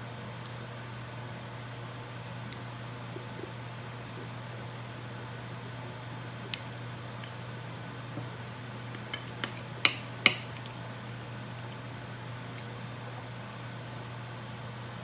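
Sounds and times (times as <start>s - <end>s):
spoon tapping ice cream container: 9.2s - 10.7s.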